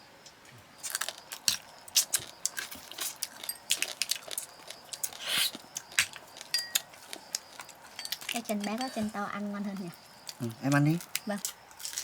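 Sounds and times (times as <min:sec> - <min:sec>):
crab shells cracking while eating: 0:00.8 - 0:08.6, 0:10.2 - 0:12.0.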